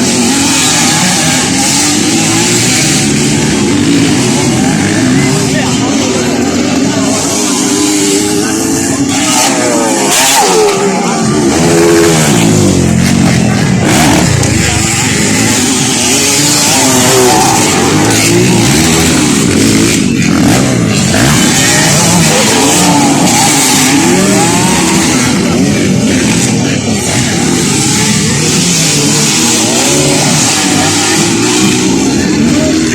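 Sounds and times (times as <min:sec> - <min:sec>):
dirt bike engines revving: 0:00.0 - 0:32.9.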